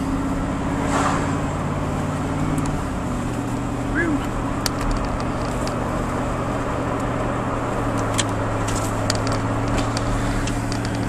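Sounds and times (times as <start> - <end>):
road noise: 0.0 - 11.0
truck engine running: 0.0 - 11.0
ticks and rattles: 4.2 - 5.9, 7.8 - 11.0.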